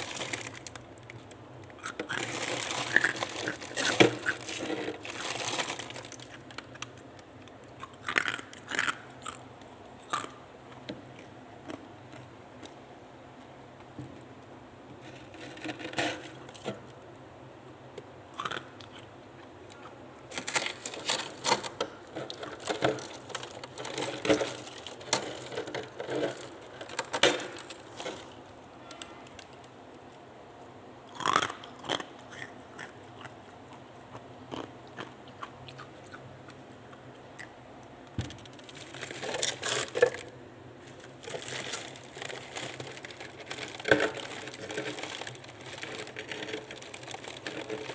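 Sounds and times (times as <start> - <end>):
person crunching frost: 0.0 - 0.8, 1.8 - 6.8, 19.8 - 28.5, 38.5 - 47.9.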